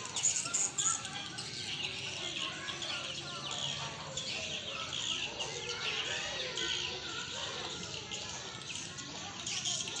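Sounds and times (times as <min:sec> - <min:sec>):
swiftlets chirping and twittering: 0:00.0 - 0:10.0.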